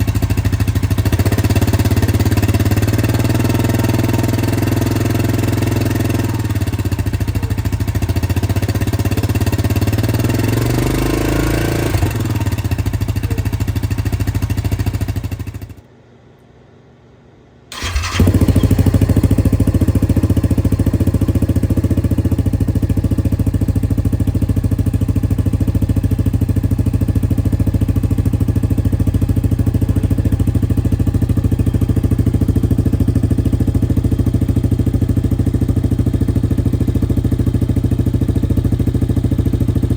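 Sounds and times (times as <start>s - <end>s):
atv engine running: 0.0s - 15.8s, 17.7s - 39.9s
engine starting: 17.7s - 18.9s.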